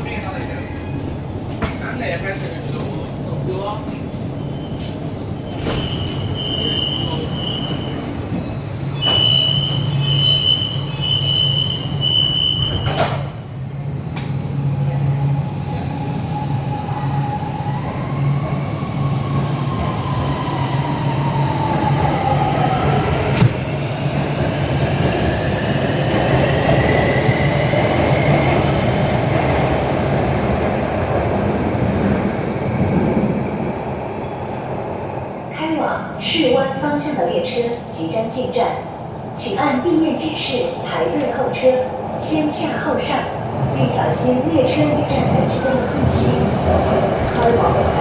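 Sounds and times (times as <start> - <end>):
train doors shutting: 3.8 - 17.5, 21.3 - 24.0, 45.0 - 48.0.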